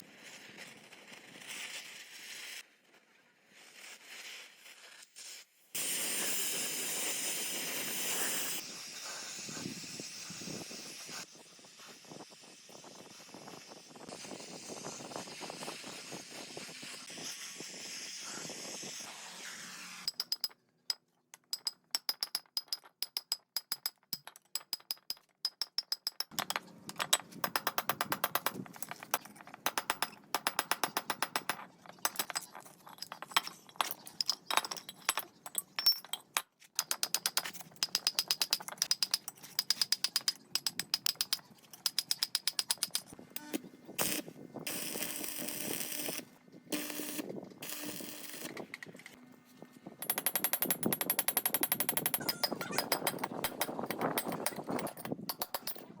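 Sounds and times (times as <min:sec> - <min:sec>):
ratchet wrench clicking: 0:20.1 - 0:20.6, 0:36.8 - 0:43.1, 0:50.0 - 0:55.8.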